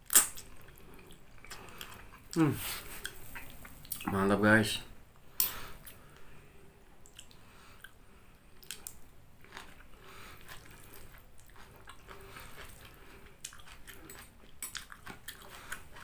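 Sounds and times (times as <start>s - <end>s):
chewing noodles: 8.6s - 16.0s.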